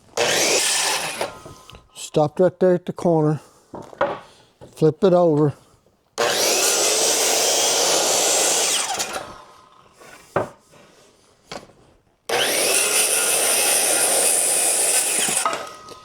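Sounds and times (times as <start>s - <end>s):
power saw cutting wood: 0.0s - 1.8s, 6.2s - 10.2s, 12.3s - 16.0s.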